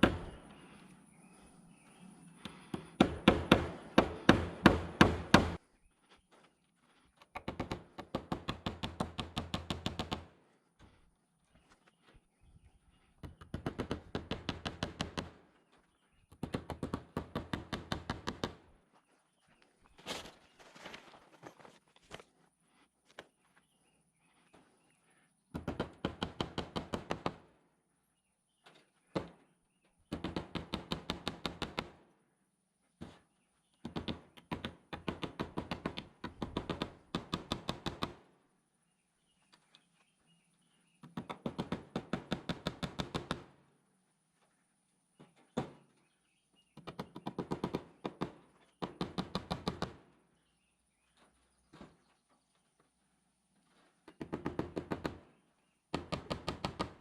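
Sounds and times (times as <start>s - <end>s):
impact driver hammering: 3.0s - 5.6s.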